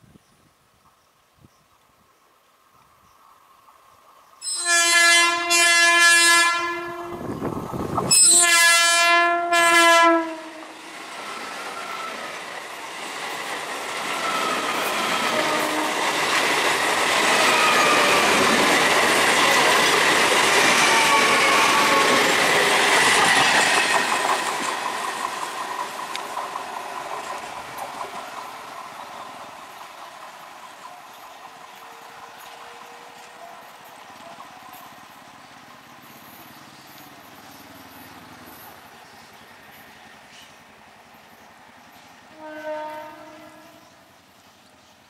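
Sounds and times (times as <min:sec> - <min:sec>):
train horn blasts: 0:04.4 - 0:07.4, 0:08.1 - 0:10.9, 0:15.2 - 0:16.2, 0:42.3 - 0:44.0
train wheels rumbling and clattering: 0:07.1 - 0:08.3, 0:10.6 - 0:42.4
wheels squealing: 0:10.8 - 0:26.1.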